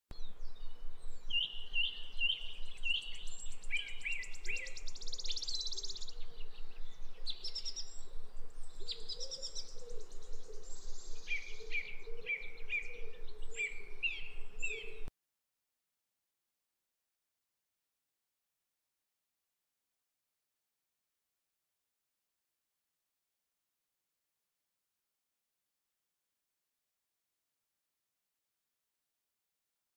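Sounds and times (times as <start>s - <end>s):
bird chirping and trilling: 0.5s - 15.1s.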